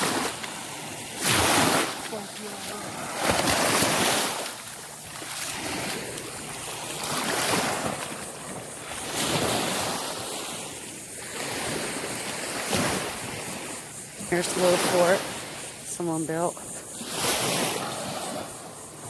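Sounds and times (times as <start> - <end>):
surf washing onto beach: 0.0 - 19.0.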